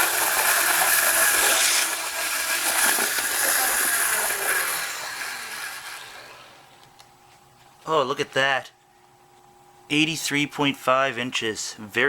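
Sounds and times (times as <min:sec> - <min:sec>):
model locomotive whirring on track: 0:00.0 - 0:06.8.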